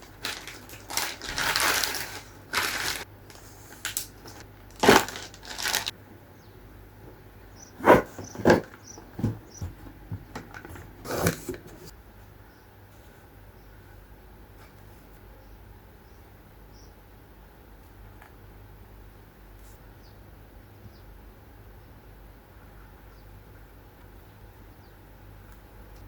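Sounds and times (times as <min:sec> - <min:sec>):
objects rustling: 0:00.0 - 0:05.9, 0:07.8 - 0:11.9.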